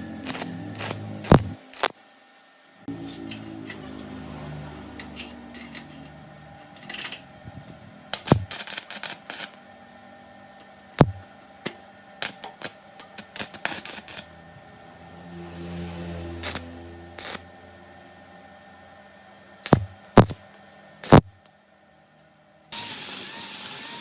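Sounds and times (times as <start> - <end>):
low hum: 0.0 - 2.0, 2.8 - 12.1, 13.8 - 19.0
metal tools clicking and clinking: 5.0 - 6.2, 6.8 - 7.3.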